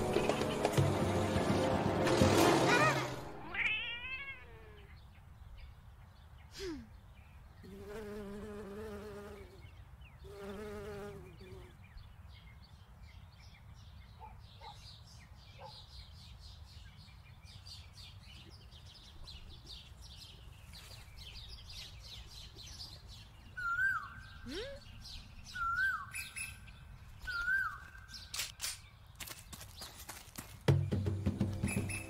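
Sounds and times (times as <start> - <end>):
small birds chirping: 3.6 - 32.0
clear whistled bird call: 23.6 - 24.9, 25.5 - 28.4, 31.6 - 32.0.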